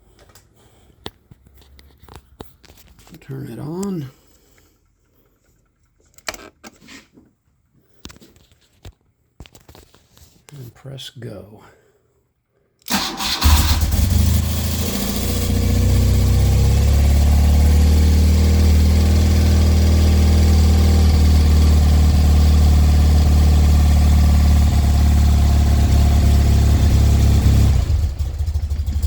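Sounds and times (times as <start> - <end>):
motorcycle starter spinning: 12.9 - 15.8
motorcycle engine running: 13.4 - 29.0.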